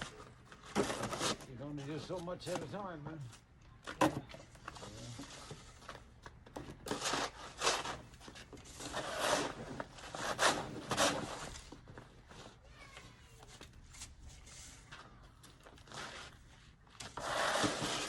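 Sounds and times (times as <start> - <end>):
snow shovel scraping snow: 6.9 - 8.1, 8.7 - 11.7, 15.9 - 16.4, 17.0 - 18.0.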